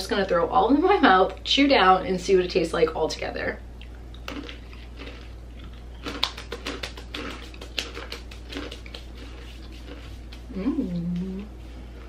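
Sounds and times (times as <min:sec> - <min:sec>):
crunchy chewing of snacks: 0:03.8 - 0:10.5.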